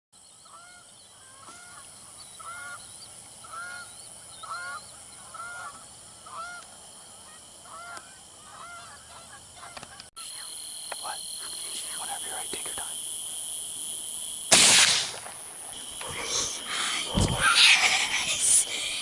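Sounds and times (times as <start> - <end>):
geese honking: 0.4 - 10.1.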